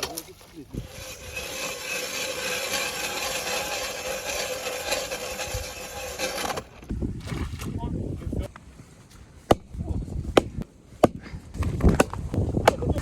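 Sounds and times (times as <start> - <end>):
saw cutting through wood: 0.7 - 6.8.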